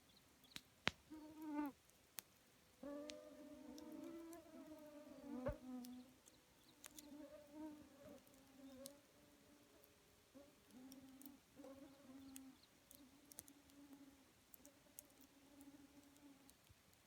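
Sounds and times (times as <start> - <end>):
campfire crackling and popping: 0.5 - 1.1, 1.9 - 2.4, 12.6 - 13.8
fly buzzing: 2.8 - 6.0.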